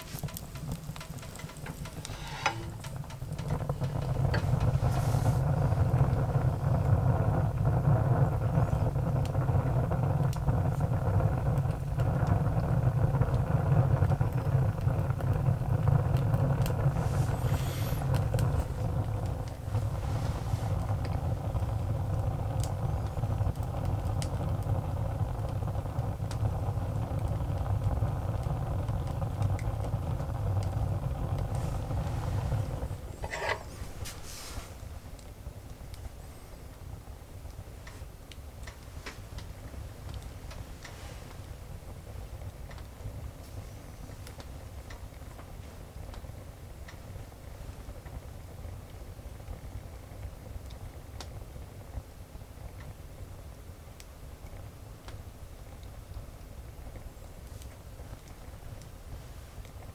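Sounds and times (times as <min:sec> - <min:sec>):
fire low rumble: 0:00.0 - 0:59.9
wood fire crackling: 0:00.0 - 0:59.9.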